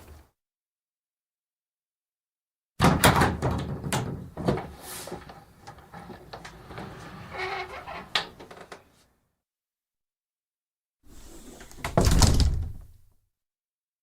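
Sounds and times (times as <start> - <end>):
wooden bifold door rattling: 2.8 - 4.7, 11.7 - 13.0.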